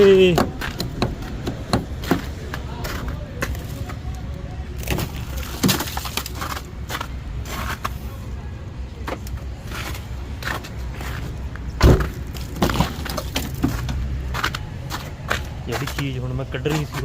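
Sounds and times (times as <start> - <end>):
knocks and handling at a car: 0.0 - 2.4, 11.8 - 14.4
sharp thump: 11.8 - 12.2.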